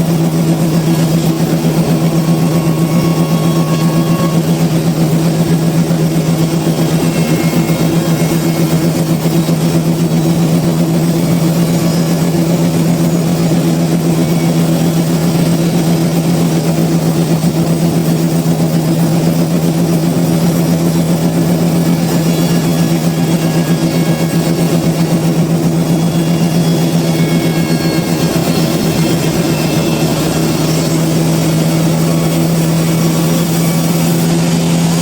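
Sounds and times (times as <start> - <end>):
sawmill machinery humming: 0.0 - 35.0.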